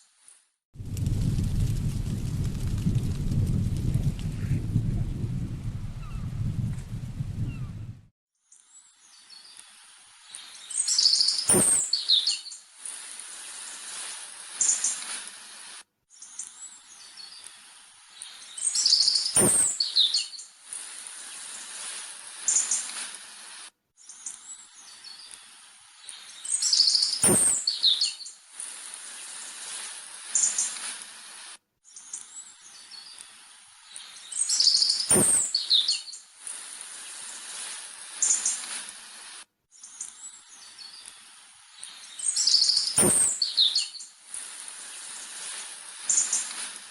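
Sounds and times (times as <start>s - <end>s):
birds chirping and whistling: 6.0s - 6.7s, 7.4s - 7.9s, 10.8s - 12.4s, 18.6s - 20.4s, 26.4s - 28.3s, 34.0s - 36.2s, 41.9s - 44.0s
background hiss: 9.2s - 15.9s, 16.6s - 23.8s, 24.8s - 31.7s, 32.7s - 39.5s, 40.2s - 46.9s
sharp knock: 11.5s - 11.8s, 19.4s - 19.7s, 27.2s - 27.6s, 35.1s - 35.5s, 43.0s - 43.4s.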